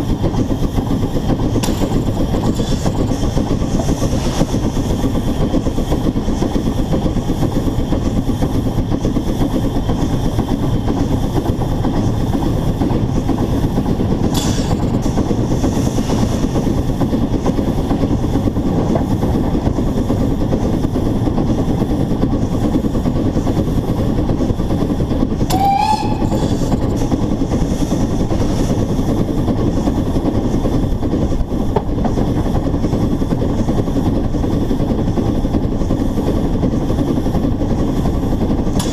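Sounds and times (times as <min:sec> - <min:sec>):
steam locomotive running: 0:00.0 - 0:38.9
steam whistle blast: 0:25.5 - 0:26.8.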